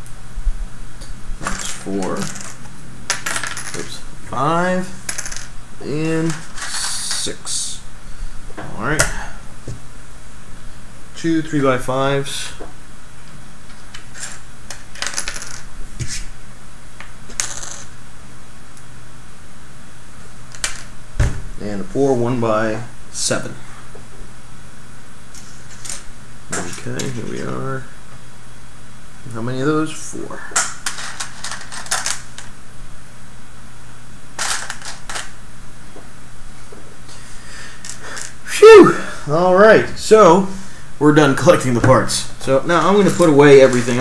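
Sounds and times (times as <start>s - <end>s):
faint low hum: 0.0s - 44.0s
plastic parts clicking and clattering: 1.4s - 2.6s, 13.9s - 15.7s, 30.6s - 32.5s, 34.4s - 35.4s.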